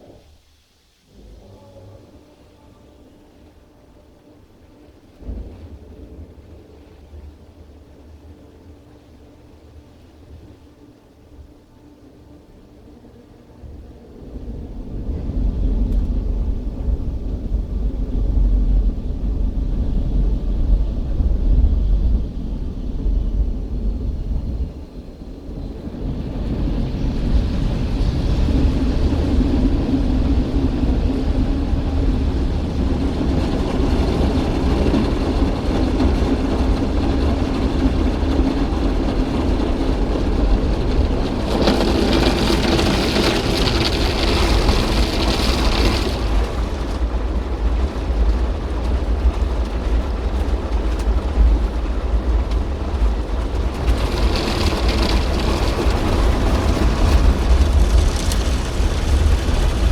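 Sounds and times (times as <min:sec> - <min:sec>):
car wash machinery rumble: 0:00.0 - 0:59.9
water spraying over car: 0:36.2 - 0:47.9, 0:53.1 - 0:59.9.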